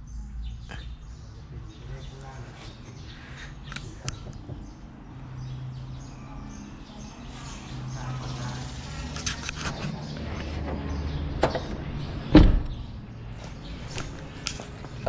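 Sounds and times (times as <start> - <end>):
vehicle engine idling: 0.0 - 15.0
heavy thump: 12.3 - 12.8.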